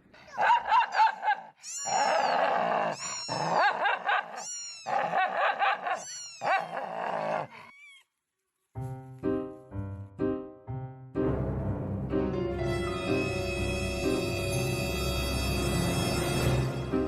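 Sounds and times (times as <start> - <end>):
pet animal long pitched calls: 1.6 - 8.0.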